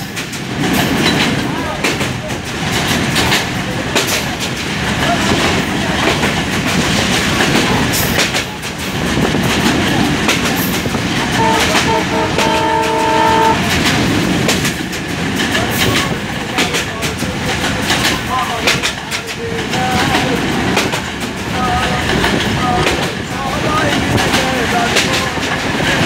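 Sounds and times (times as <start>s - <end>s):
train rumbling: 0.0s - 26.0s
wheels clacking on rails: 0.0s - 26.0s
locomotive horn: 11.3s - 13.8s.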